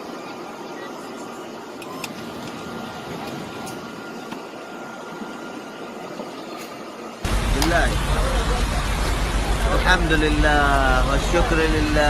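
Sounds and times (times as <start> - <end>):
heavy rain hissing: 6.8 - 12.0.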